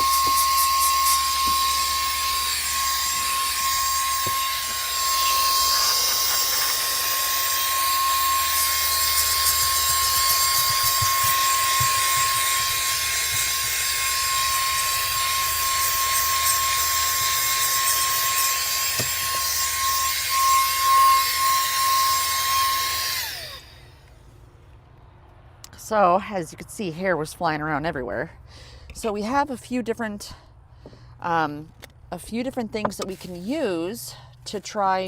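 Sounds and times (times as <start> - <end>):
handheld vacuum motor whine: 0.0 - 24.2.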